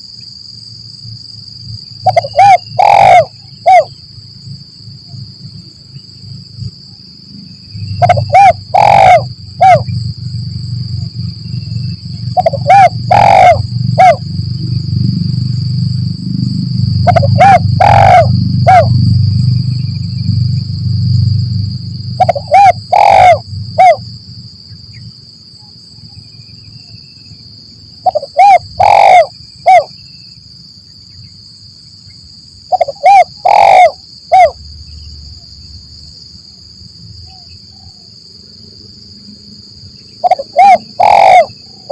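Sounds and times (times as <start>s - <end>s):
high insect drone: 0.0s - 41.9s
dove cooing: 2.0s - 3.9s, 8.0s - 9.9s, 12.3s - 14.2s, 17.0s - 19.1s, 22.2s - 24.0s, 28.0s - 29.9s, 32.7s - 34.6s, 40.2s - 41.9s
low rumble: 9.3s - 22.5s.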